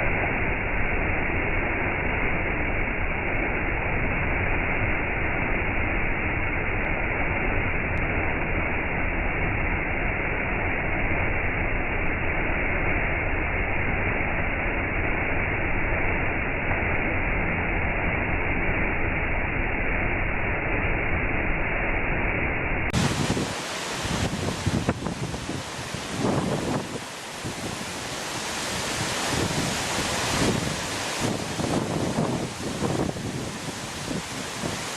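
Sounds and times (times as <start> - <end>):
brighter water rushing: 22.9 - 34.9
waterfall roaring: 23.0 - 34.9.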